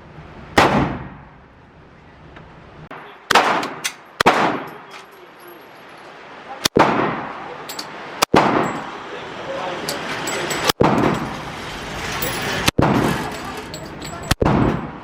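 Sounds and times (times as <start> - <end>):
gunshots with echo: 3.3 - 4.8, 6.7 - 7.4.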